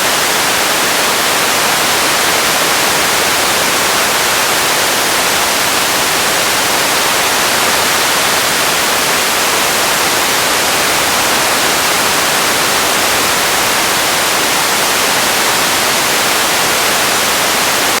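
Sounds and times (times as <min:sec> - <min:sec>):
radio static hiss: 0:00.0 - 0:18.0.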